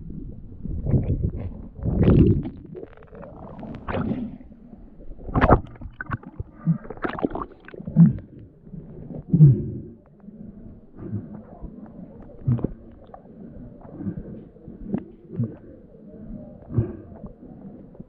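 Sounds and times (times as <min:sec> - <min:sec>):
muffled water sloshing and gurgling: 0:00.0 - 0:18.0
sharp knocks underwater: 0:05.3 - 0:08.4.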